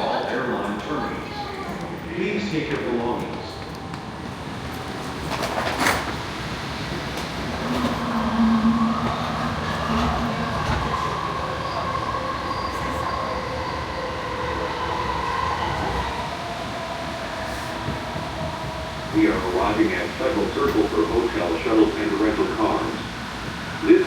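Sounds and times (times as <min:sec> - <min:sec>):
wheels rumbling on track: 0:00.1 - 0:24.0.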